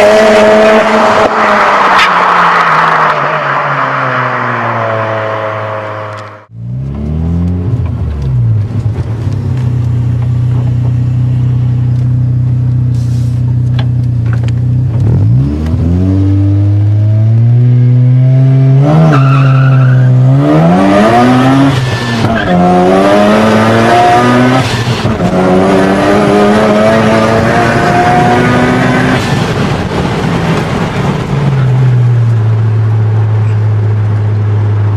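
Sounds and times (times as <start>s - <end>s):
rotary engine revving: 14.9s - 29.7s.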